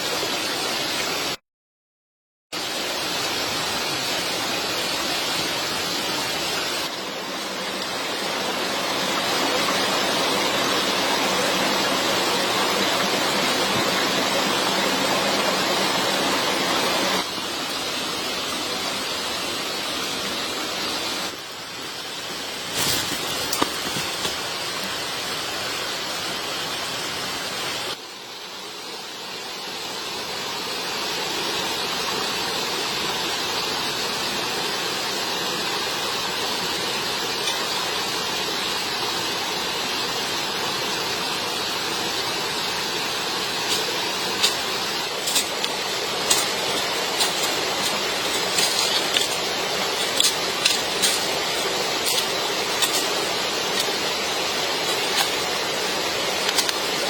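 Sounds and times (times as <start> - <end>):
rushing water: 0.0 - 1.4, 2.6 - 57.0.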